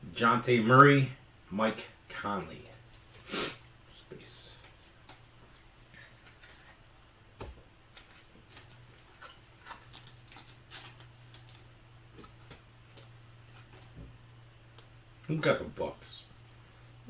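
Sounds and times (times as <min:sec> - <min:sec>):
trading cards rustling and clicking: 0:04.6 - 0:06.8, 0:07.4 - 0:14.0.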